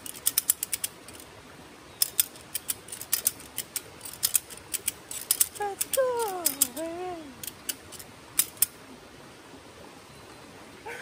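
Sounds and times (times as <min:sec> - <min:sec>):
ratchet clicking: 0:00.0 - 0:01.2, 0:02.0 - 0:06.8, 0:07.4 - 0:08.7.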